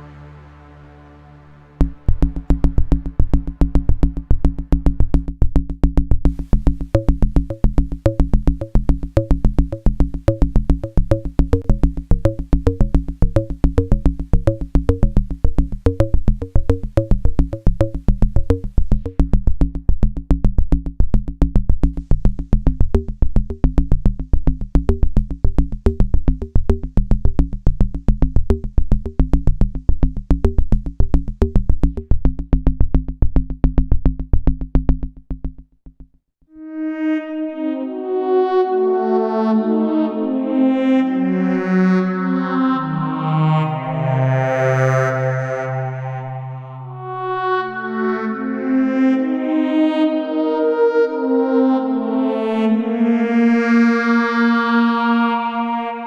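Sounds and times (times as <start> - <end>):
arpeggiated synthesizer notes: 0.0 - 20.5, 36.6 - 56.0
held synth bass: 0.0 - 35.7, 36.6 - 56.0
drum machine pulse: 1.8 - 36.2.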